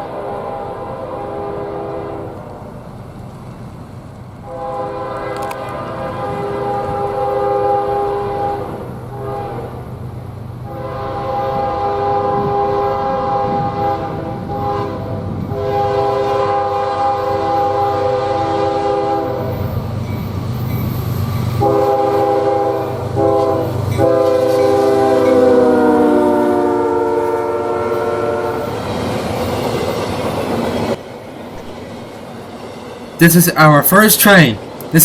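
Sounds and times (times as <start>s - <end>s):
passing train rumble: 0.0s - 35.0s
locomotive air horn chord: 0.2s - 2.3s, 4.4s - 9.7s, 10.6s - 19.6s, 21.6s - 28.7s.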